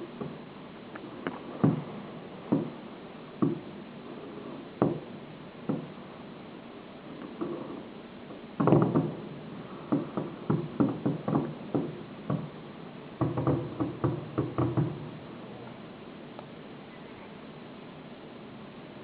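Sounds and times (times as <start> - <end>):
fireworks bangs: 8.6 - 15.4.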